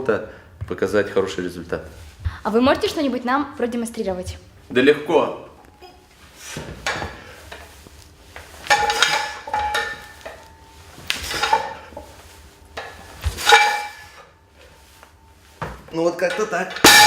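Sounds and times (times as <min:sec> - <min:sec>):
metal weights clanking: 0:08.7 - 0:10.1, 0:12.8 - 0:14.2, 0:16.3 - 0:17.0.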